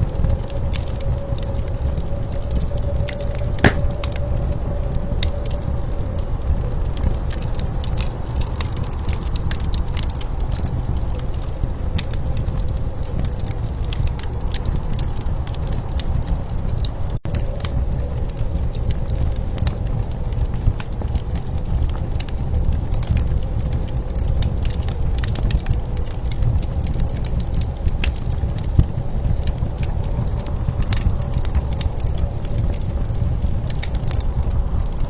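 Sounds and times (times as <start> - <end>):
low rumble of blizzard wind: 0.0 - 35.0
wood fire crackling and popping: 3.6 - 4.3.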